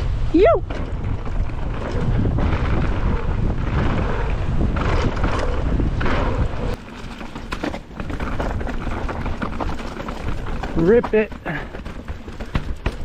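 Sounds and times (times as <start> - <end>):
wind buffeting microphone: 0.0 - 6.8
bike rumbling and rattling: 0.0 - 13.0
bike clicks and knocks: 0.7 - 13.0.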